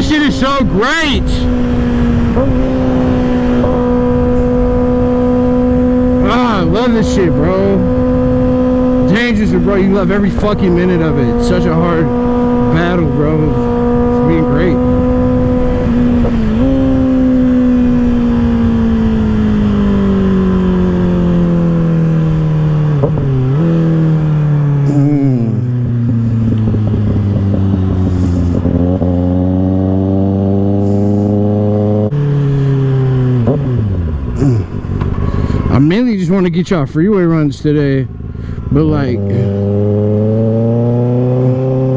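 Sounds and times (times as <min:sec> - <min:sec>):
wind rush: 0:00.0 - 0:22.0
motorcycle engine: 0:00.0 - 0:41.9.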